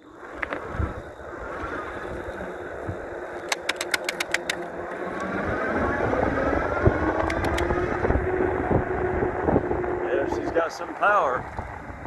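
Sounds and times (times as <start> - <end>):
wind and road rumble: 0.0 - 12.0
clicks: 3.3 - 5.3, 7.2 - 7.8
electric motor whine: 4.4 - 10.6.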